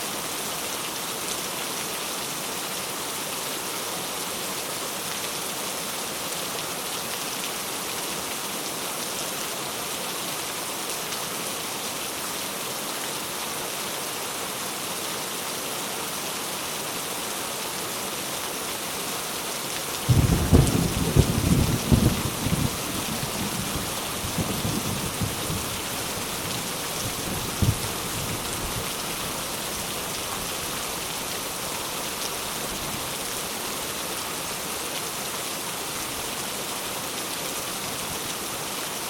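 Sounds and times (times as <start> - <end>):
steady rain falling: 0.0 - 39.0
low rumble of thunder: 20.1 - 25.9, 27.0 - 28.9.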